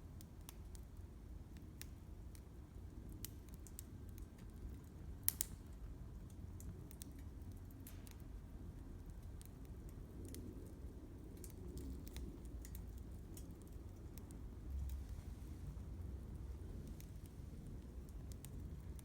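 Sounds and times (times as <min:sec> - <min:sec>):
low steady rumble: 0:00.0 - 0:19.0
wood fire crackling: 0:00.1 - 0:19.0.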